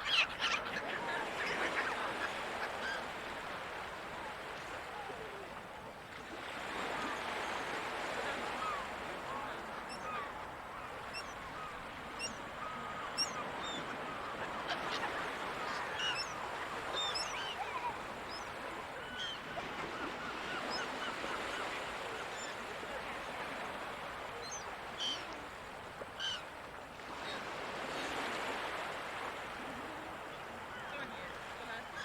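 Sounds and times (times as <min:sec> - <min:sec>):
gulls calling: 0:00.0 - 0:05.5, 0:08.4 - 0:22.8, 0:24.2 - 0:25.5, 0:26.2 - 0:26.5
ocean surf: 0:00.0 - 0:32.0.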